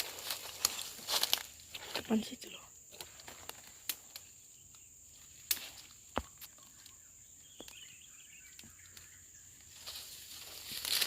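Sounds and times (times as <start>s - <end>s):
insects droning: 0.0s - 11.0s
faint chirp: 6.2s - 10.0s.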